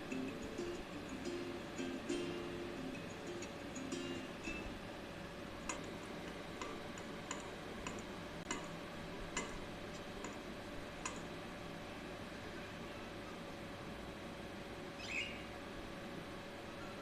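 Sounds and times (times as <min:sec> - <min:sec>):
steady background hiss: 0:00.0 - 0:17.0
light sharp clicks: 0:05.6 - 0:08.8.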